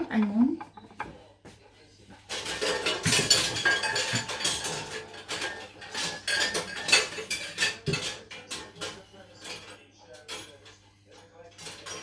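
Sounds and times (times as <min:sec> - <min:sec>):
metal utensils clattering: 0:02.3 - 0:10.8, 0:11.5 - 0:12.0.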